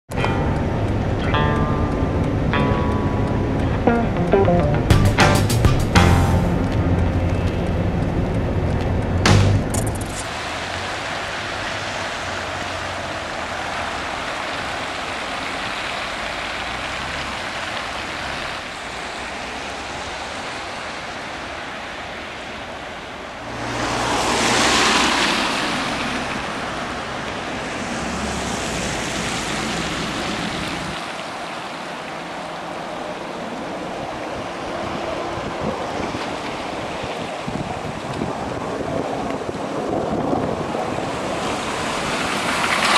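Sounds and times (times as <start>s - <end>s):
rushing water and traffic: 0.1s - 42.9s
low engine hum: 5.9s - 10.2s
car driving through flood water: 6.3s - 42.9s.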